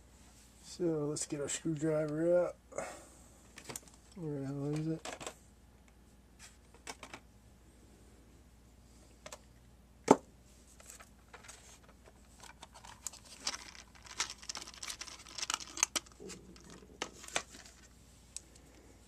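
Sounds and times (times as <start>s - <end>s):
hand rummaging small hard objects: 10.8s - 18.0s.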